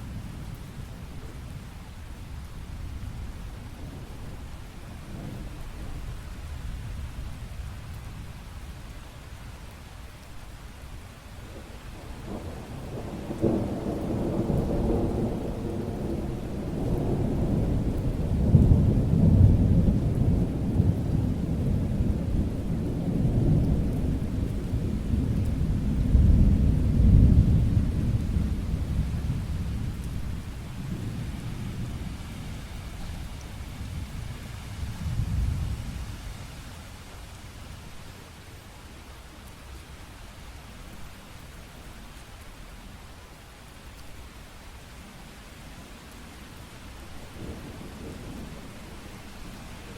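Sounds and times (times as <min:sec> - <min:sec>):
steady rain: 0:00.0 - 0:49.9
thunder rumbling: 0:12.2 - 0:36.1, 0:47.0 - 0:49.9.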